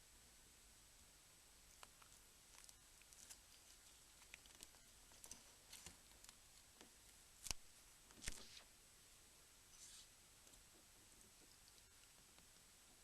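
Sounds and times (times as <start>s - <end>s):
small clicks and scratches: 1.7s - 8.7s.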